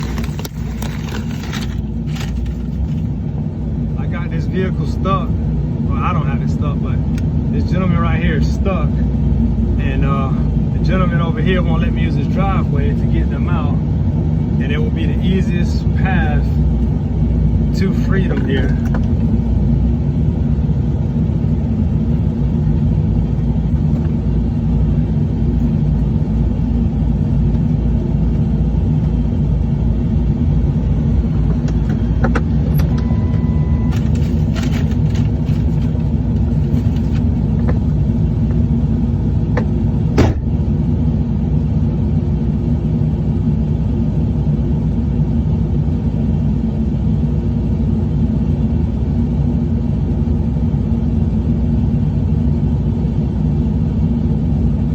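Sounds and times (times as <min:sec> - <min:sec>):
truck engine running: 0:00.0 - 0:54.9
brief beep: 0:32.8 - 0:34.0.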